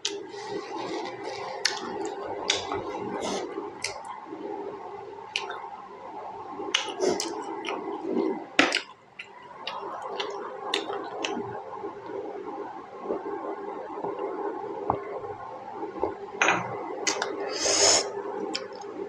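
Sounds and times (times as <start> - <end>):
wet squishy chewing: 0.0 - 4.1, 8.6 - 11.5
lip smacks and clicks: 1.6 - 4.1, 6.7 - 7.8.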